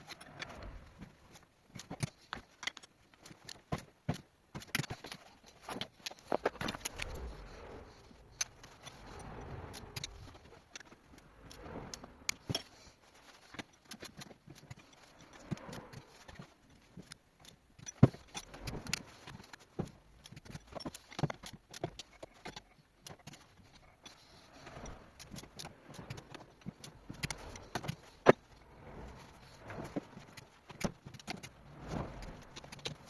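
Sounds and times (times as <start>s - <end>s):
metal parts and tools clinking: 0.0s - 33.0s.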